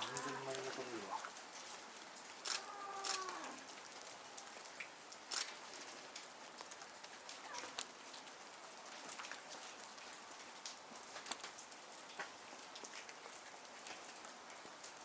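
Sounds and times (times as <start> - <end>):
snow leopard calling: 0.0 - 1.2, 2.5 - 3.6.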